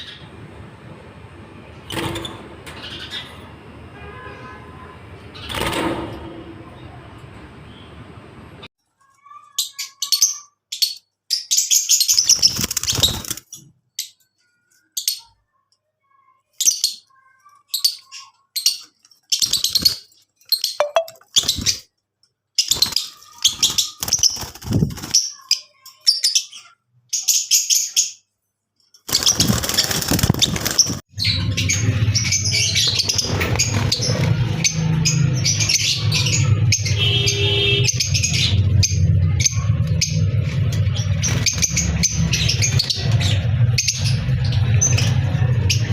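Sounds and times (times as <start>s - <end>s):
lovebirds chirping: 16.6s - 21.8s.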